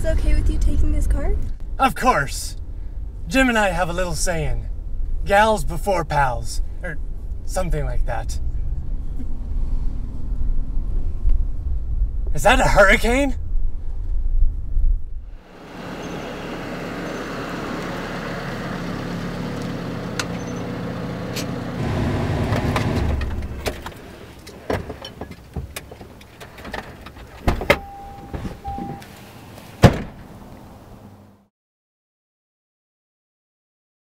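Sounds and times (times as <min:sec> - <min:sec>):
car engine running: 0:15.3 - 0:29.4
car door thuds: 0:27.2 - 0:29.0, 0:29.8 - 0:30.3
short steady beep: 0:27.7 - 0:29.1.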